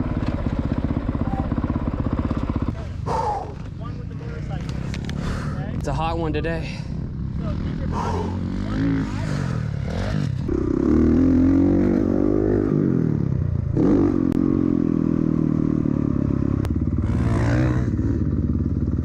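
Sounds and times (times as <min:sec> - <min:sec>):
dirt bike engine revving: 0:04.3 - 0:19.0.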